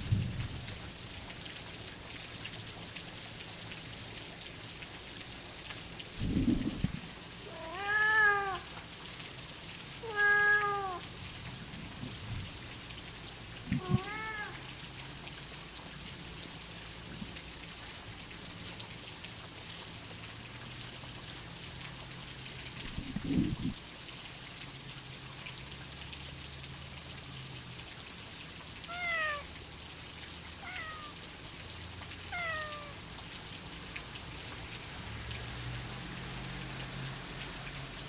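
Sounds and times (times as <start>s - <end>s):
low rumble of thunder: 0.0s - 0.9s, 6.2s - 7.0s, 22.8s - 23.8s
steady rain: 0.0s - 38.0s
cat meowing: 7.4s - 8.7s, 10.0s - 11.1s, 13.7s - 14.7s, 28.8s - 29.6s, 30.6s - 31.2s, 32.3s - 33.0s.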